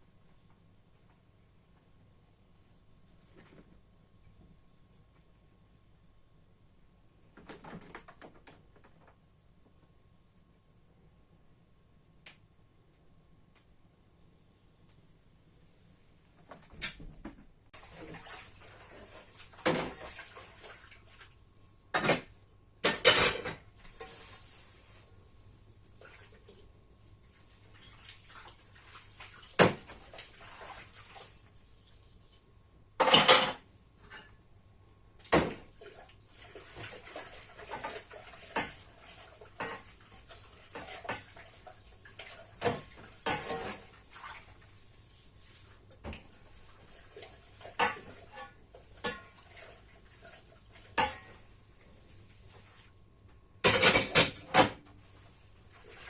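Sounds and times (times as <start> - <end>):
dishes and cutlery clattering: 22.0 - 24.2, 33.0 - 34.4, 42.6 - 43.9, 47.7 - 49.4, 50.9 - 51.4, 53.6 - 54.8.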